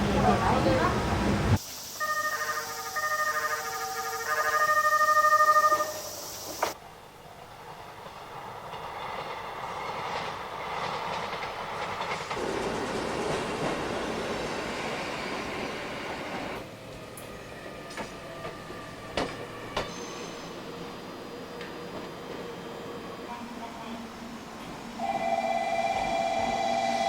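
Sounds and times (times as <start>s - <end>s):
electric train running on rails: 0.0s - 27.0s
sharp clicks from wheels and track: 16.3s - 20.0s.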